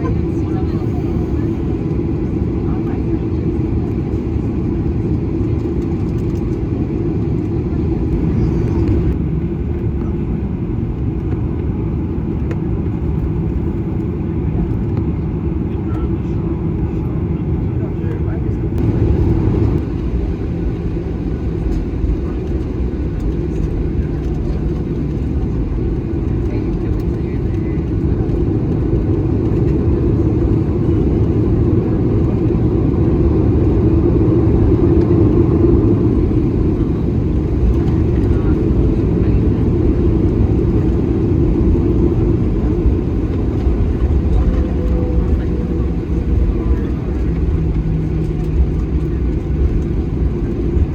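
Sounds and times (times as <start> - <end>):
airliner cabin rumble: 0.0 - 50.9.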